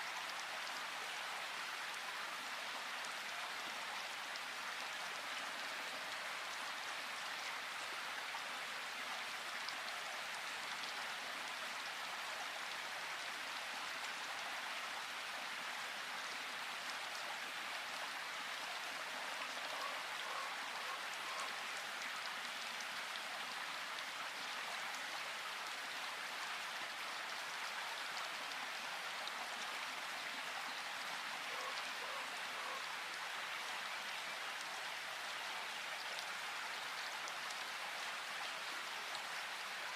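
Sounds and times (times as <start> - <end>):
steady rain in a forest: 0.0 - 39.9.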